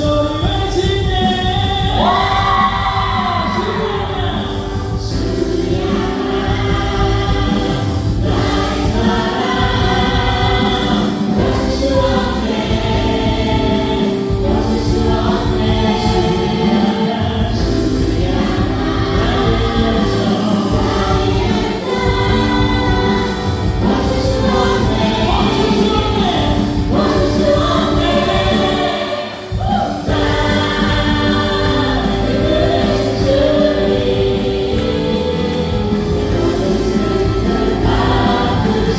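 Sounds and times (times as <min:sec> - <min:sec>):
voices singing together: 0:00.0 - 0:38.9
worship band playing: 0:00.0 - 0:38.9.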